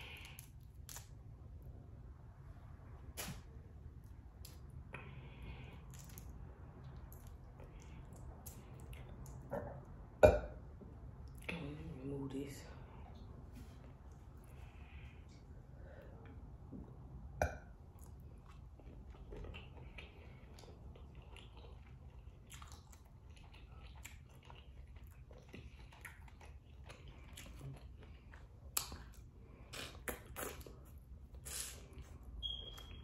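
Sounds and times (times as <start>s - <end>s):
chewing with wet clicks: 5.8s - 10.0s, 17.7s - 33.0s.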